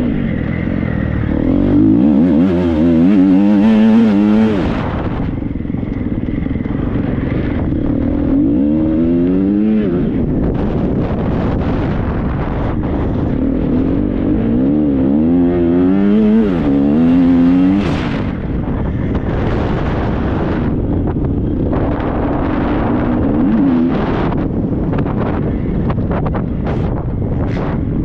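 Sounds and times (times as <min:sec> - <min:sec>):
motocross bike engine revving: 0:00.0 - 0:12.0, 0:12.6 - 0:20.8.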